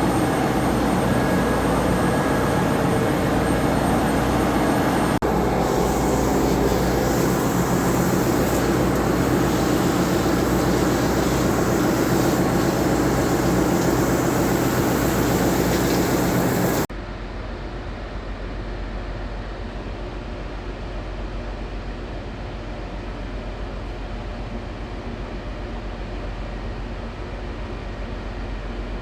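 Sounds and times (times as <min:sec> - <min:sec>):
ship engine room machinery: 0:00.0 - 0:16.9.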